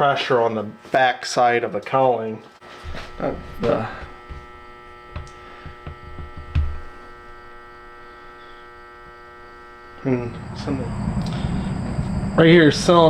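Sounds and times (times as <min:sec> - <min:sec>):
electrical hum: 0:02.6 - 0:13.0
wavering pitched sound: 0:10.0 - 0:13.0.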